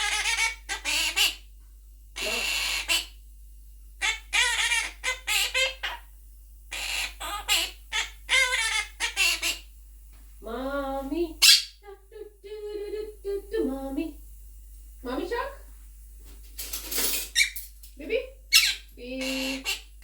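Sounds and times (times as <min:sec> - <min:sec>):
parakeet chattering and warbling: 0:00.0 - 0:01.4, 0:02.2 - 0:03.2, 0:04.0 - 0:06.1, 0:06.7 - 0:09.7, 0:11.4 - 0:11.8, 0:17.3 - 0:17.6, 0:18.5 - 0:20.0
shrill parakeet squawk: 0:00.0 - 0:01.4, 0:02.2 - 0:03.2, 0:04.0 - 0:06.0, 0:06.7 - 0:09.7, 0:11.4 - 0:11.8, 0:17.3 - 0:17.6, 0:18.5 - 0:20.0.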